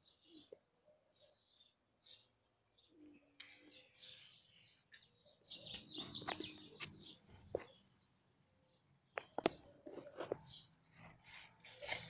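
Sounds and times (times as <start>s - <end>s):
small birds chirping: 0.0s - 12.0s
rustling in dry leaves: 10.8s - 12.0s.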